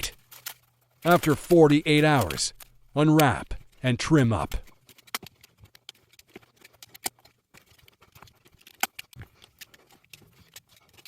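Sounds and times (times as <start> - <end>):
faint clicks and snips: 4.5 - 11.0.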